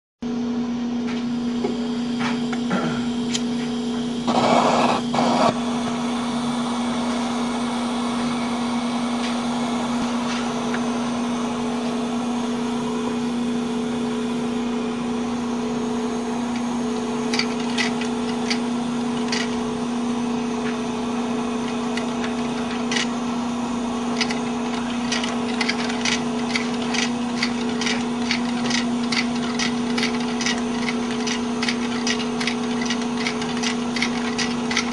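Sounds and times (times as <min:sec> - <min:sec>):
torch hiss and hum: 0:01.2 - 0:34.9
engine linkage ticking: 0:17.3 - 0:19.6, 0:24.2 - 0:34.9.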